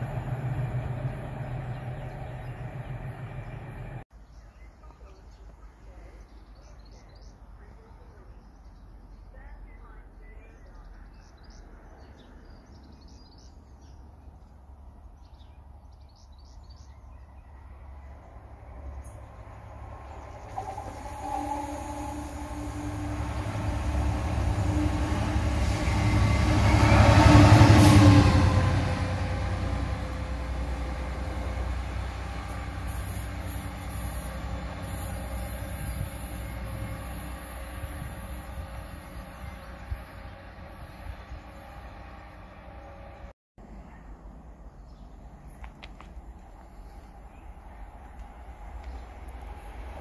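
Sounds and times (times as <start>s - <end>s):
train passing at speed: 0.0s - 4.1s, 16.8s - 50.0s.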